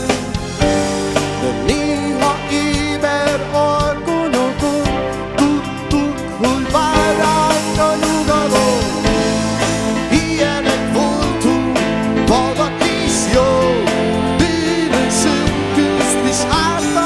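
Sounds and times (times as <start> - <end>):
rock band playing: 0.0 - 17.0
sliding melody line: 0.0 - 17.0
drum beat: 6.5 - 13.7.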